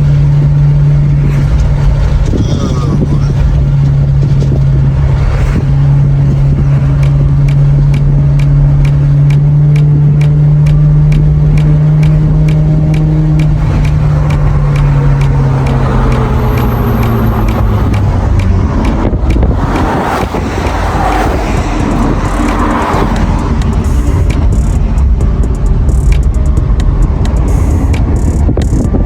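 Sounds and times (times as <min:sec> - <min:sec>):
car engine cruising: 0:00.0 - 0:29.0
light ticking: 0:06.4 - 0:29.0.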